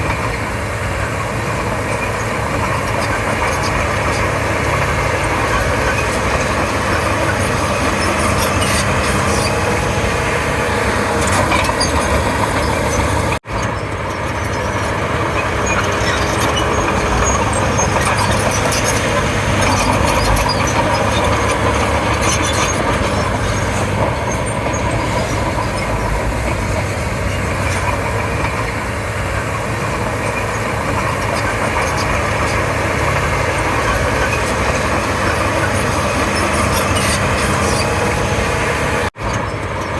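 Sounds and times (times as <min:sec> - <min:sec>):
bulldozer diesel engine running: 0:00.0 - 0:39.9
bulldozer track noise: 0:00.0 - 0:39.9.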